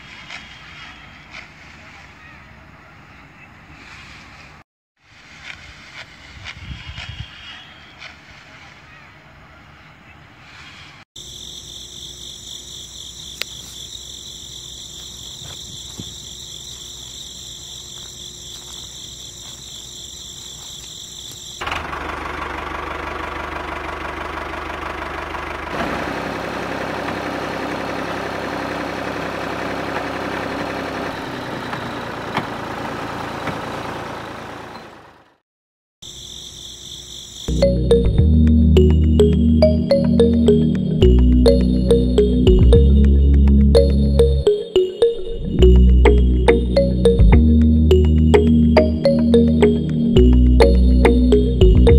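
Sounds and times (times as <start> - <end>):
high-pitched drone: 37.5 - 51.9.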